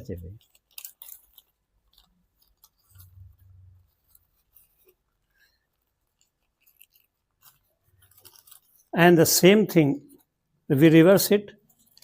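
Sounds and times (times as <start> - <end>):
paper crinkling while folded: 0.0 - 12.0.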